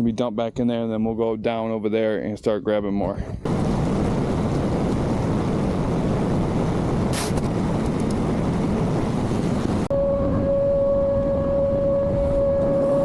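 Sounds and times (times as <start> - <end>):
high-pitched hum: 9.8 - 13.0.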